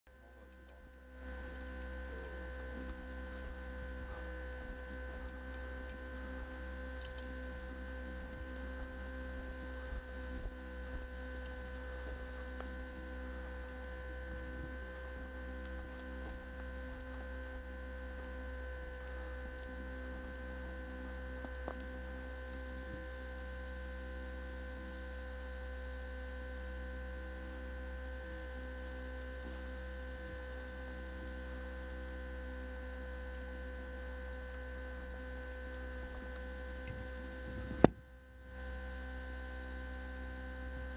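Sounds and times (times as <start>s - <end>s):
electrical hum: 0.1s - 40.9s.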